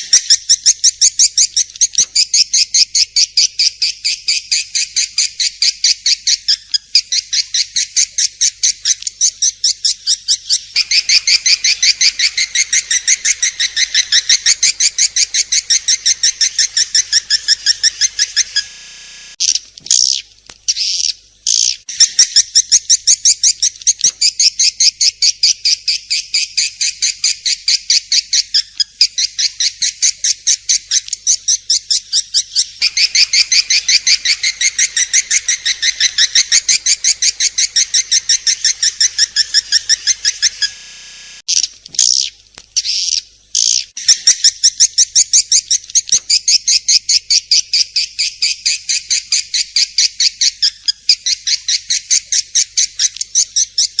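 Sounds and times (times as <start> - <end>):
swiftlet chittering chirps: 10.7 - 22.6, 32.8 - 44.8.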